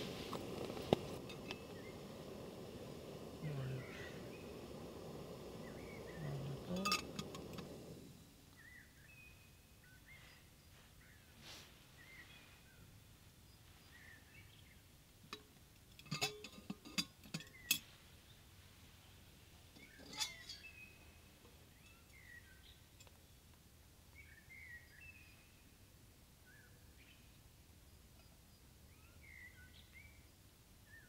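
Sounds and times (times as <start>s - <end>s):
small birds chirping: 0.0s - 15.0s, 17.1s - 31.0s
sharp clinks and knocks: 15.3s - 17.9s, 19.8s - 20.8s.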